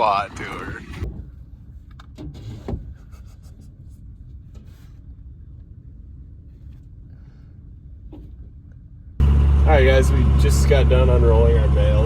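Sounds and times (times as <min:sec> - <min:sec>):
tractor engine rumble: 0:09.2 - 0:12.0.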